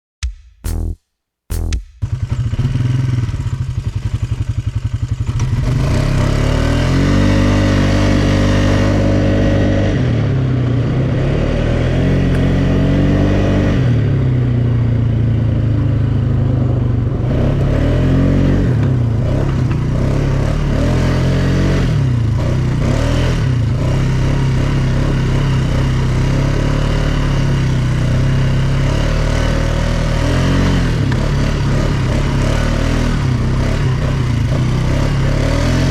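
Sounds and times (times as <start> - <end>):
quad bike engine revving: 1.5 - 35.9.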